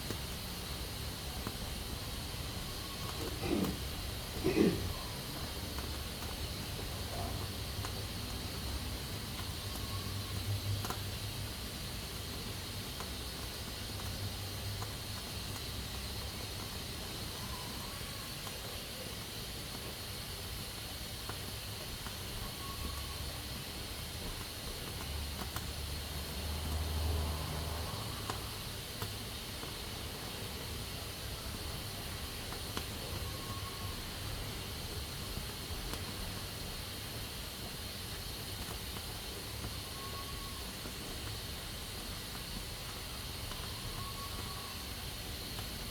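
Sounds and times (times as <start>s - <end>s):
pressure cooker hissing: 0.0s - 14.0s.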